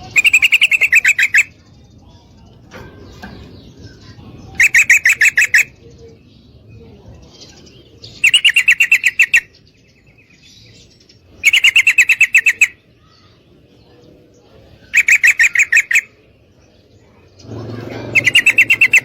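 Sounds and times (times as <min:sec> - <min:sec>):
bird rapid chattering call: 0:00.0 - 0:01.8, 0:02.6 - 0:05.9, 0:07.6 - 0:09.7, 0:11.1 - 0:13.3, 0:14.8 - 0:16.2, 0:17.2 - 0:19.0.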